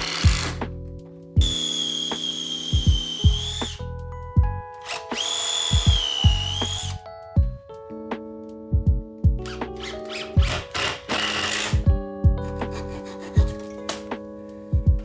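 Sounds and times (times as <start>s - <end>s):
background music with drums: 0.0s - 0.8s, 1.4s - 3.8s, 4.4s - 7.6s, 8.7s - 9.8s, 10.4s - 15.0s
power tool motor whining: 1.4s - 3.8s, 4.8s - 7.0s, 9.8s - 11.8s.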